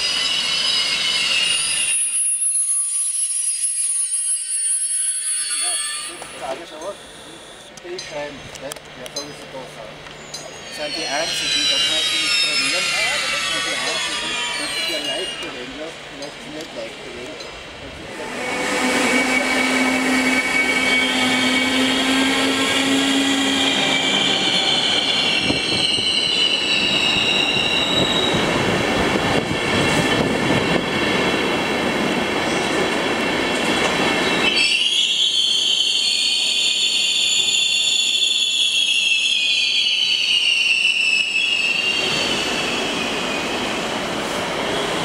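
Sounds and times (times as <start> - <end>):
brakes squealing: 0.1 - 16.9, 18.8 - 28.6
train rolling rumble: 5.7 - 34.7.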